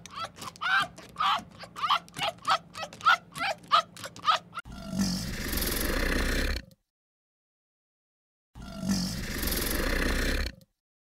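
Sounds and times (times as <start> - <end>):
fox yelping: 0.0 - 4.6
crocodile low rumbling hiss: 8.9 - 10.5.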